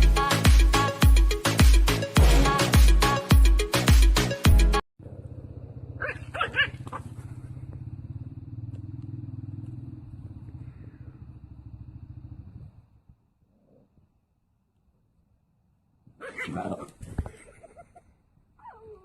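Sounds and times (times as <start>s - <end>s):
animal growling: 5.0s - 14.0s, 16.2s - 17.2s
animal yelps: 6.0s - 7.5s, 16.2s - 17.0s, 18.6s - 19.0s.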